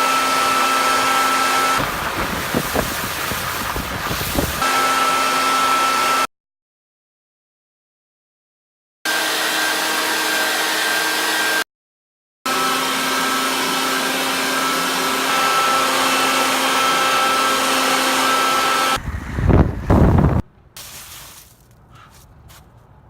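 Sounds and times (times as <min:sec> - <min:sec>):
blower whooshing with motor whine: 0:00.0 - 0:06.3, 0:09.1 - 0:11.6, 0:12.5 - 0:20.4
wind buffeting microphone: 0:01.8 - 0:04.6, 0:19.0 - 0:20.5.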